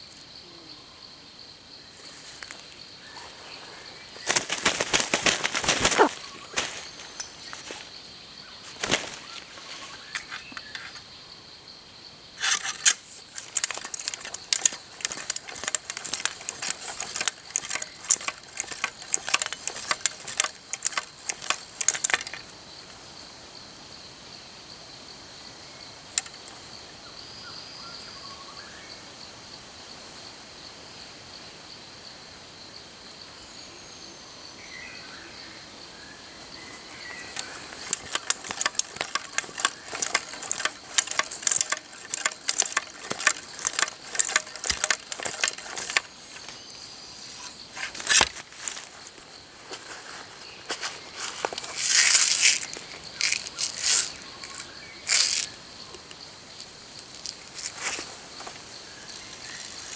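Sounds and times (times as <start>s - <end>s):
crackling rustling clicks: 2.0s - 11.1s, 12.4s - 22.6s, 26.1s - 26.7s, 36.6s - 59.9s.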